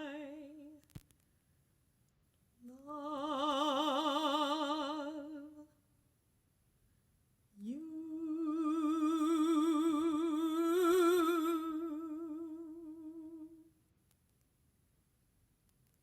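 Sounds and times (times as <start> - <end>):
classical voice singing held note: 2.6 - 5.7, 7.6 - 13.7.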